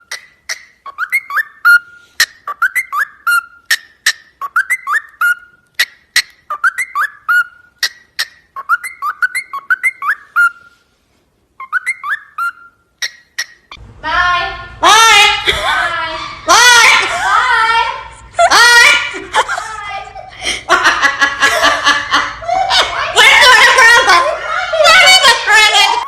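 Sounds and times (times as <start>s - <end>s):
parrot whistling: 0.0s - 10.8s, 11.6s - 13.8s.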